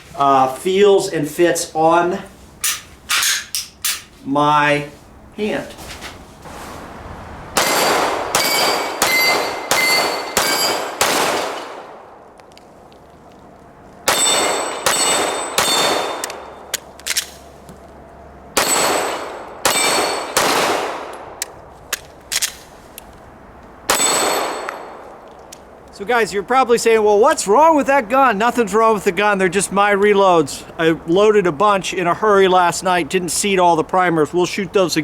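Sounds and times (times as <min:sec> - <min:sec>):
steel targets clanging: 0:02.6 - 0:04.2, 0:07.6 - 0:11.0
pistol shots: 0:07.6 - 0:12.2, 0:14.1 - 0:17.4, 0:18.6 - 0:21.4, 0:23.9 - 0:25.0
small gun clicks: 0:16.2 - 0:17.4, 0:21.1 - 0:22.7.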